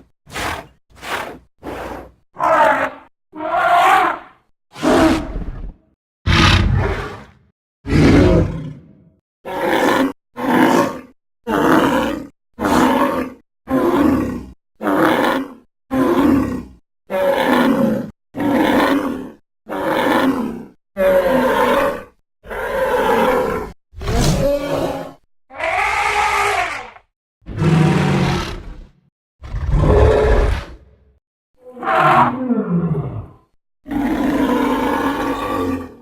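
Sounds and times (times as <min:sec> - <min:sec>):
creature bellowing calls: 0:02.4 - 0:05.2, 0:09.5 - 0:28.6.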